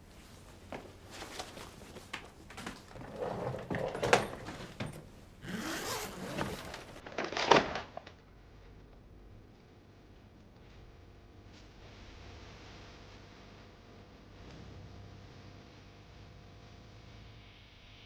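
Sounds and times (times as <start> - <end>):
rustles and scrapes: 0.0 - 7.0.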